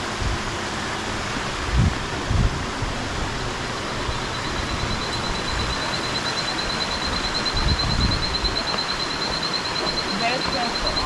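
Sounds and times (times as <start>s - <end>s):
forest background hiss: 0.0s - 11.0s
insect trilling: 3.8s - 11.0s.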